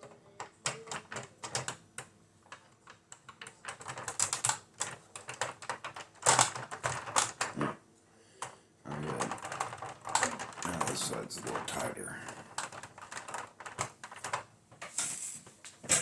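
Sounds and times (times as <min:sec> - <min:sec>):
plastic toy parts clicking: 0:00.0 - 0:07.6, 0:08.4 - 0:14.5
plastic rubbing scrapes: 0:08.9 - 0:16.0.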